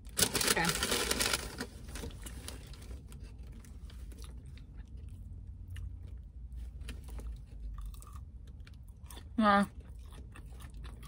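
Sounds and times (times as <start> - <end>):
low steady hum: 0.0 - 11.0
person chewing close up: 3.1 - 11.0.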